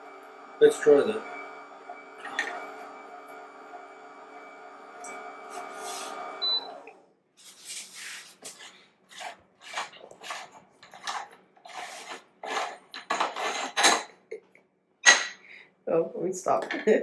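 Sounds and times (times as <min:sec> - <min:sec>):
meat grinder motor humming: 0:00.0 - 0:07.0
scraping and rustling: 0:07.4 - 0:14.0.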